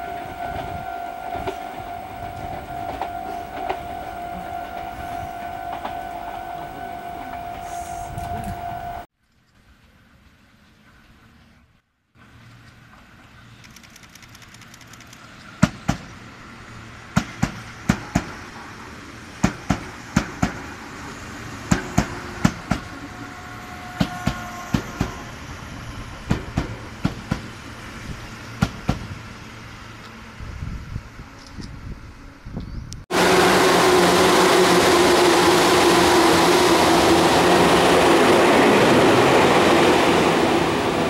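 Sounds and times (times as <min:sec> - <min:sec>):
brief train squeal: 0:00.0 - 0:09.1, 0:21.9 - 0:26.3
train low rumble: 0:00.0 - 0:09.1, 0:15.7 - 0:41.0
train wheels clacking over rail joints: 0:19.4 - 0:20.7, 0:21.6 - 0:23.0, 0:26.3 - 0:27.6.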